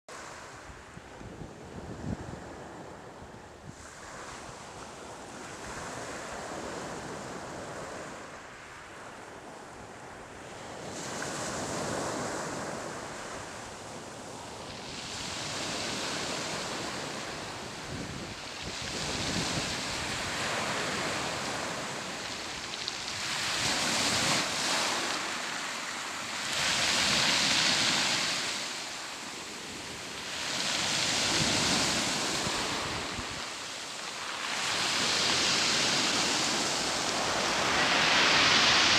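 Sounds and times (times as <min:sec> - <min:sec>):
sea waves breaking: 0:14.8 - 0:38.9
wind buffeting microphone: 0:15.2 - 0:24.9.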